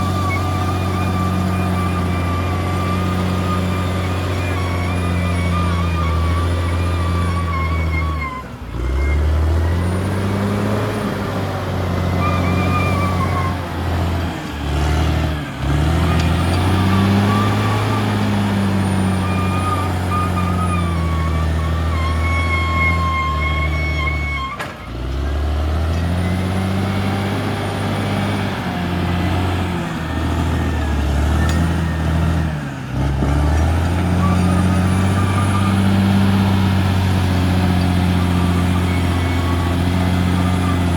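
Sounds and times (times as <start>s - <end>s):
high wavering squeal: 0.0s - 13.7s, 16.0s - 24.9s, 34.0s - 40.9s
bulldozer diesel engine working: 0.0s - 40.9s.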